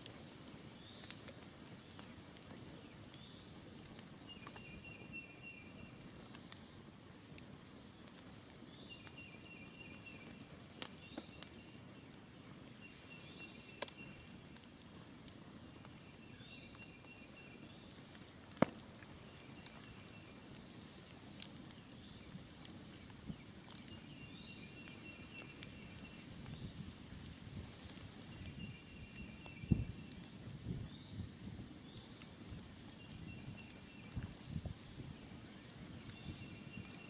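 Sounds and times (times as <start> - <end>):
campfire crackling and popping: 0.0 - 37.0.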